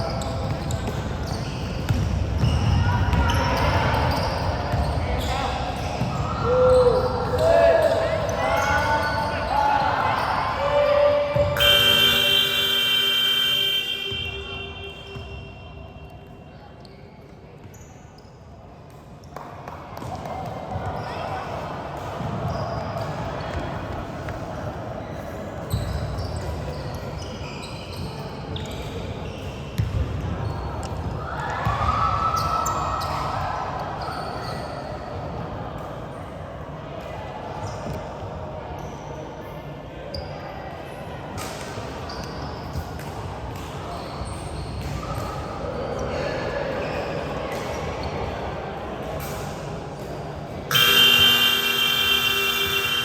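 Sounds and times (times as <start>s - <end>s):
sneakers squeaking: 0.0s - 33.4s, 34.0s - 35.5s, 41.4s - 48.4s
gym background noise: 0.0s - 53.0s
basketball bouncing on court: 0.4s - 5.1s, 29.2s - 31.8s
basketball bouncing on floor: 1.8s - 3.2s.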